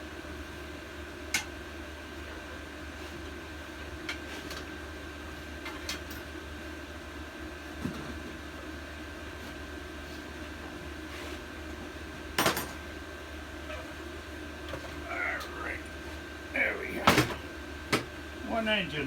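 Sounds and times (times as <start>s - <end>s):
steady background hum: 7.8s - 19.0s.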